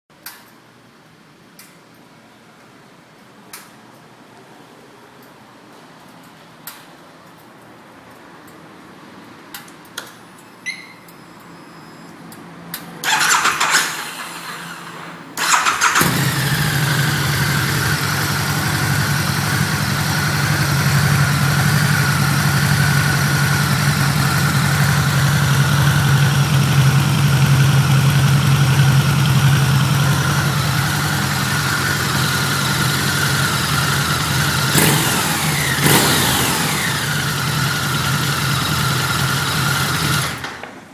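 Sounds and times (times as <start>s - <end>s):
starter motor cranking: 13.0s - 40.6s
motorcycle engine idling: 15.4s - 40.4s.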